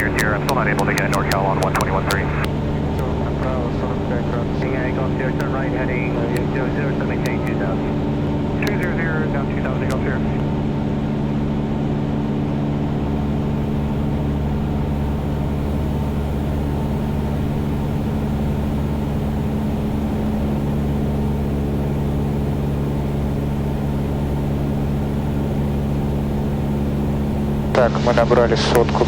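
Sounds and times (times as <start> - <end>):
propeller plane engine droning: 0.0 - 29.0.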